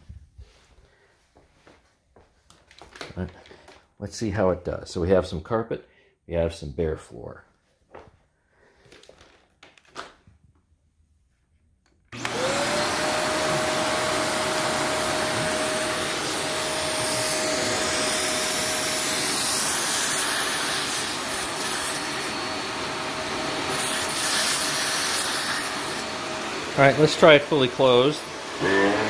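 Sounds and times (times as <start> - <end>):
vacuum cleaner motor whine: 12.1 - 29.0.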